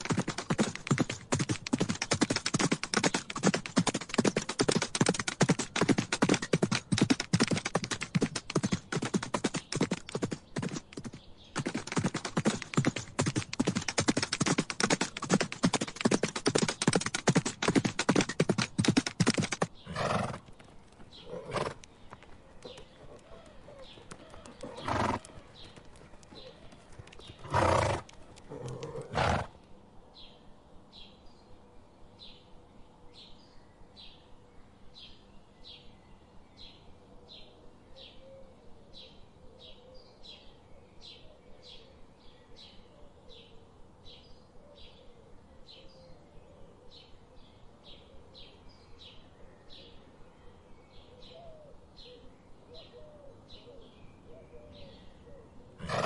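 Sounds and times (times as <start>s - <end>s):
horse snorting: 11.6s - 20.5s, 21.2s - 21.8s, 22.9s - 25.7s, 27.2s - 29.6s, 55.8s - 56.0s.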